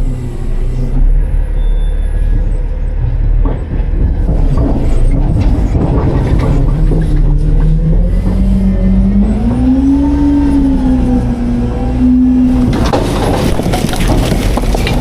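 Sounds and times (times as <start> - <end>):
diesel engine under load: 0.0 - 15.0
metal clattering and scraping: 3.0 - 8.6, 12.6 - 15.0.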